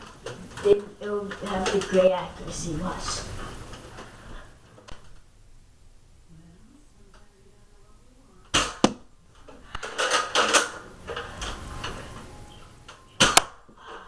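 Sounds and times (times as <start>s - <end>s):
dart blaster firing pop: 8.6s - 9.0s, 13.2s - 13.6s
clattering handling noise: 8.6s - 12.3s
sharp click: 13.2s - 13.6s.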